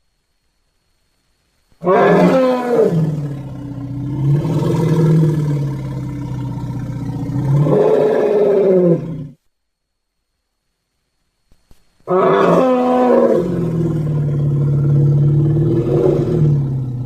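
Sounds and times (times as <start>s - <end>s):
elephant deep call: 12.1s - 17.0s.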